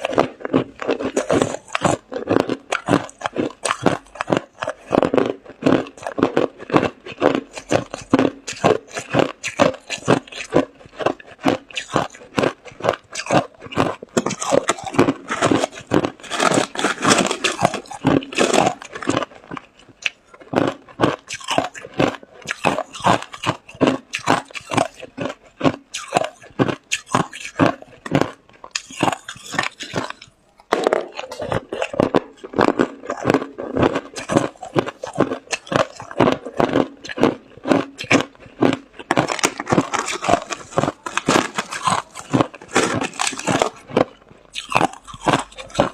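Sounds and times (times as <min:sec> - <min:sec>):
person crunching ice: 0:00.0 - 0:45.9.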